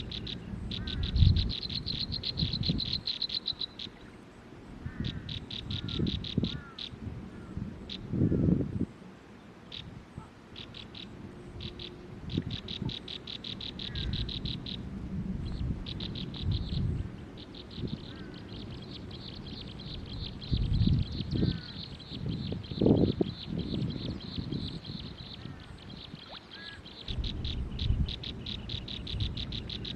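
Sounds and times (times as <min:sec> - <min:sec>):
small bird chirping: 0:00.0 - 0:04.1, 0:10.6 - 0:14.8, 0:15.4 - 0:29.9.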